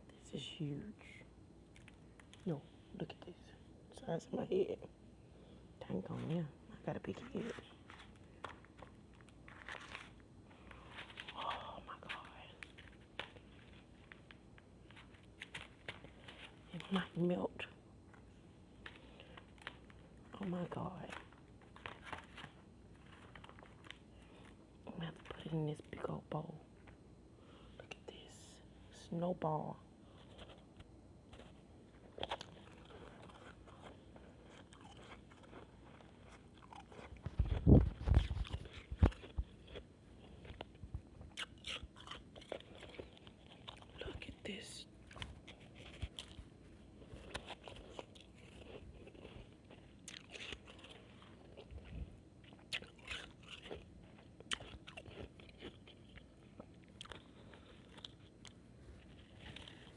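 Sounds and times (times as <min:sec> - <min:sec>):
person chewing shaved ice: 0:18.8 - 0:25.4, 0:30.1 - 0:59.9.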